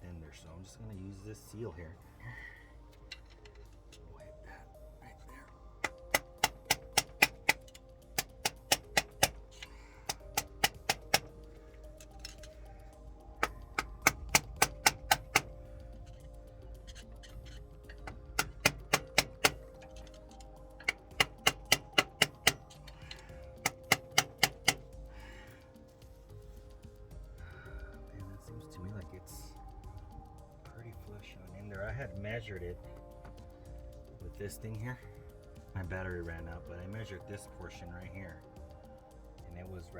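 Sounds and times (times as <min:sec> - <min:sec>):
background music with sustained tones: 0:00.0 - 0:39.9
quick sharp metal taps: 0:05.8 - 0:25.6.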